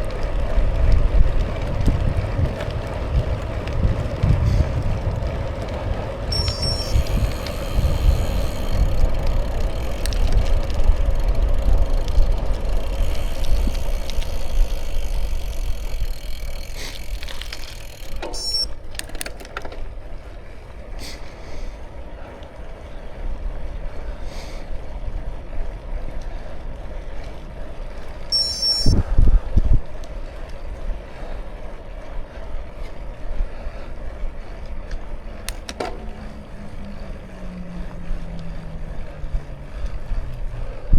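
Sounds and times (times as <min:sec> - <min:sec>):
wind on microphone: 0:00.0 - 0:14.1
bicycle tyres on road: 0:00.0 - 0:40.9
high chirps: 0:06.3 - 0:07.2, 0:18.3 - 0:18.7, 0:28.4 - 0:29.0.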